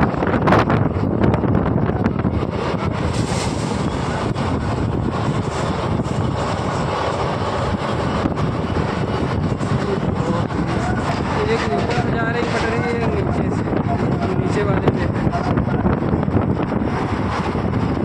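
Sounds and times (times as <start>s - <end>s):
road vehicle rumble: 0.0s - 18.0s
wind buffeting microphone: 0.0s - 18.0s.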